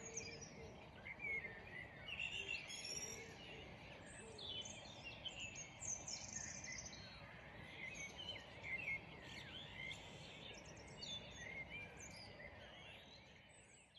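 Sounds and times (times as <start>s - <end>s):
birds chirping and singing: 0.0s - 13.9s
low background noise: 0.0s - 13.9s.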